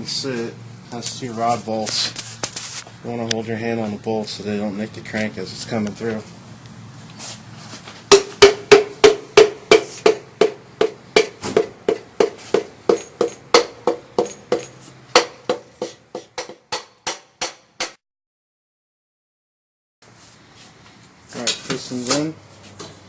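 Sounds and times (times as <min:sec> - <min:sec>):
hammer tapping metal: 0:08.1 - 0:18.0.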